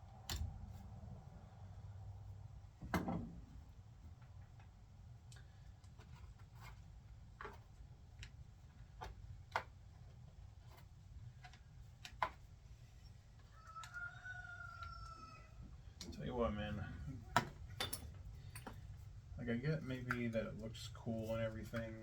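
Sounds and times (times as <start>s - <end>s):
rooster crowing: 13.5s - 15.6s
low steady hum: 15.5s - 22.0s
tools clicking and tapping: 17.4s - 18.8s.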